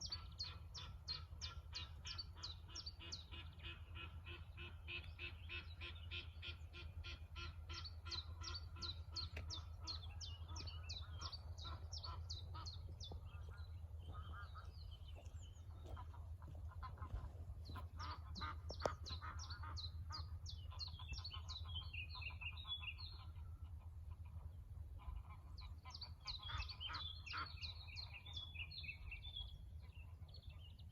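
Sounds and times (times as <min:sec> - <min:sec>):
steady low rumble: 0:00.0 - 0:30.9.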